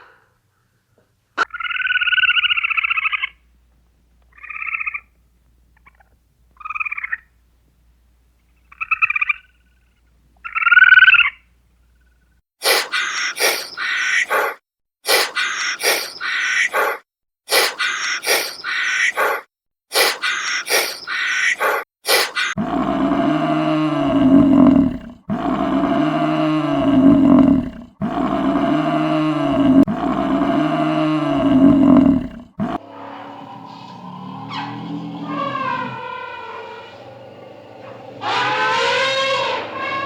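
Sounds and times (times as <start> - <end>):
short rapid animal calls: 12.6 - 22.6
large animal roaring: 13.4 - 14.5, 15.8 - 16.2, 22.2 - 40.0.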